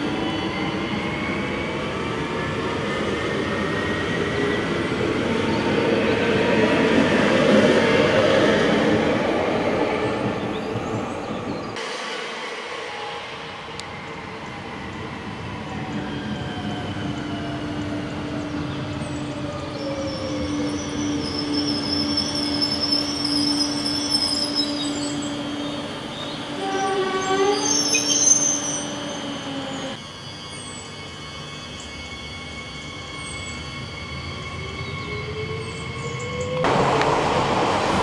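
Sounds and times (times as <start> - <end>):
rolling train wheels: 0.0 - 38.0
high brake squeal: 18.9 - 36.6.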